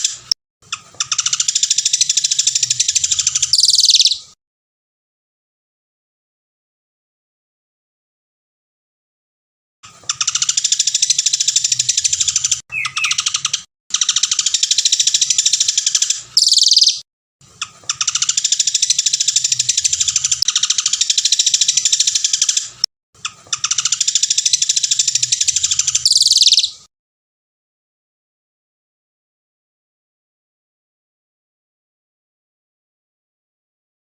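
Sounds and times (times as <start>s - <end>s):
songbird trilling: 3.6s - 4.2s, 12.7s - 13.5s, 14.1s - 17.0s, 26.0s - 26.8s.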